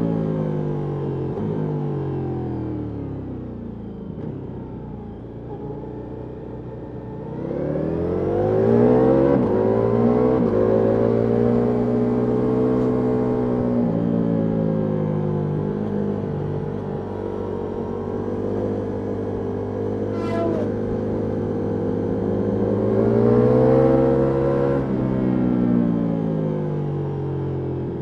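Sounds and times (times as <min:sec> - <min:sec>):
motorcycle engine revving: 0:18.8 - 0:25.1.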